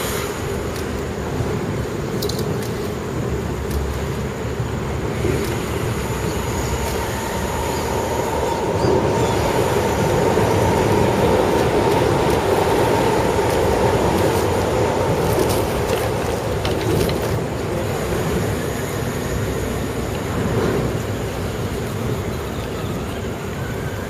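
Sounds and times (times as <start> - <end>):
electric motors droning: 3.2 - 24.0
thin motor whine: 4.9 - 24.0.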